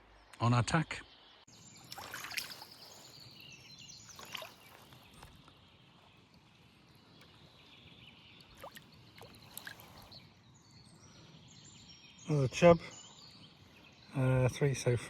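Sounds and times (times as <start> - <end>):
flowing water hiss: 1.6 - 5.5
short bird chirps: 1.6 - 5.5.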